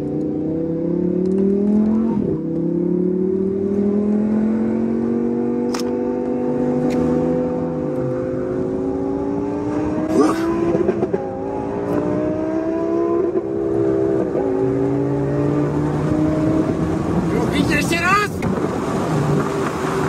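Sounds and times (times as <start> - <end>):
car engine accelerating: 0.0 - 17.7
wind and road noise: 0.0 - 20.0
sharp click: 5.6 - 6.0.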